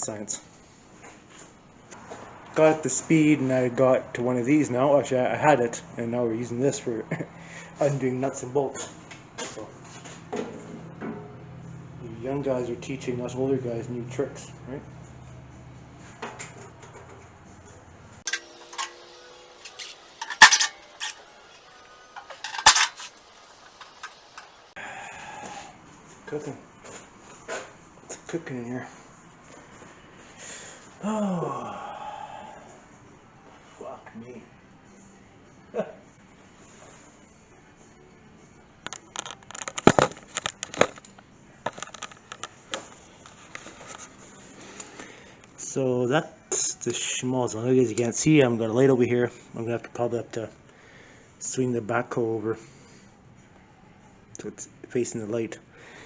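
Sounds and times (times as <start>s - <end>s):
metal tools clinking: 18.3s - 24.6s.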